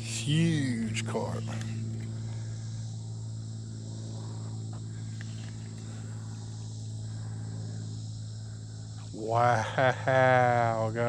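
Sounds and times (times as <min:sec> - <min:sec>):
insects chirring: 0:00.0 - 0:11.0
low hum: 0:00.0 - 0:11.0.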